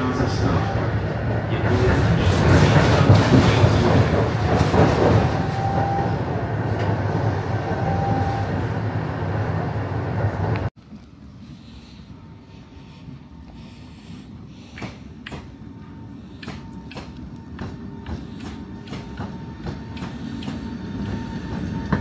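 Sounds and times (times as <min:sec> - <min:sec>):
transit vehicle rumble: 0:00.0 - 0:22.0
clatter: 0:01.8 - 0:05.6.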